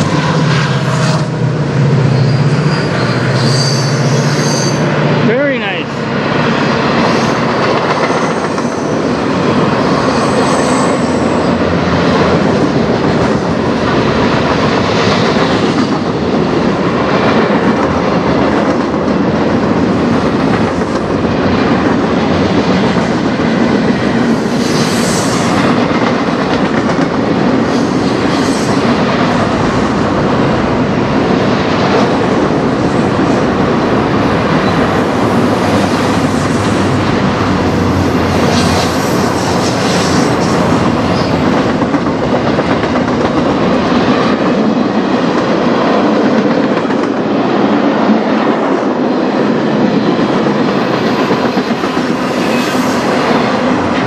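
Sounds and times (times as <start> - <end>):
steel wheels rumbling on rail: 0.0 - 54.0.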